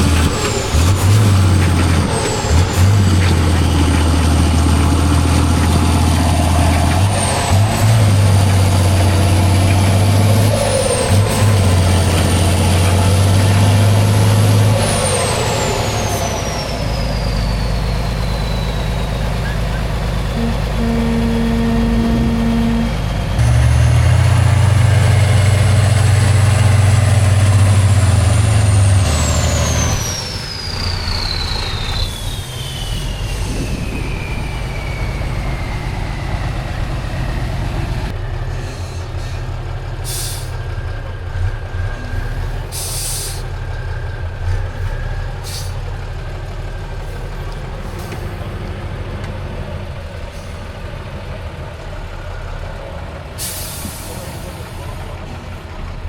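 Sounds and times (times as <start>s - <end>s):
diesel truck engine revving: 0.0s - 56.0s
turbo whine: 20.4s - 24.8s.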